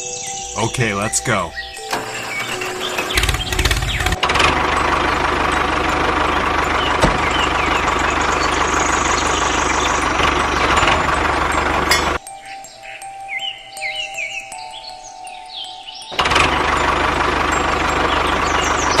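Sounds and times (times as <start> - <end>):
small engine putter: 1.8 - 12.2, 16.2 - 19.0.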